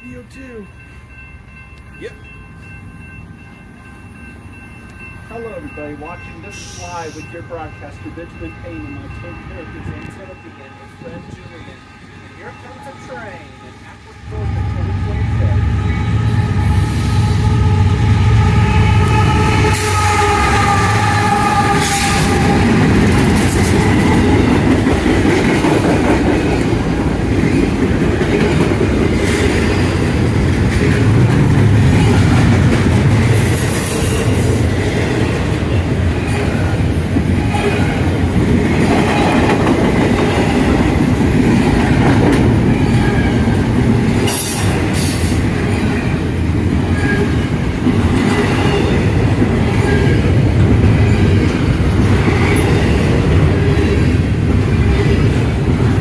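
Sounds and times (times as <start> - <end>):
locomotive horn chord: 10.0 - 23.1
train wheels rumbling over rails: 14.2 - 56.0.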